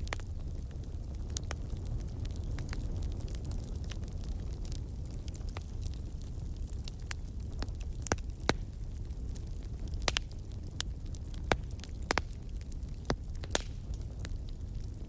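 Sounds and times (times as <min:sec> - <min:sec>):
low rumble of flames: 0:00.0 - 0:15.0
wood fire popping and snapping: 0:00.0 - 0:15.0.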